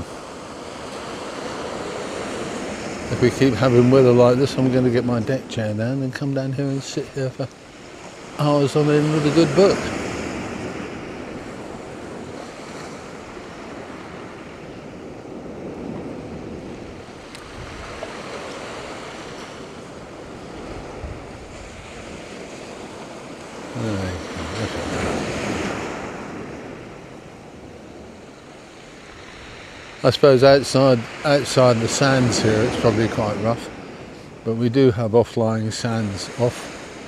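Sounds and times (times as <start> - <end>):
wind on microphone: 9.1 - 30.0.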